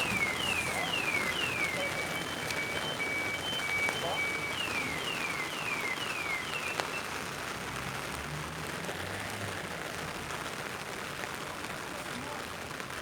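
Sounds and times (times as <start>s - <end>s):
falling high chirps: 0.0s - 7.1s
rain hissing on a street: 0.0s - 13.0s.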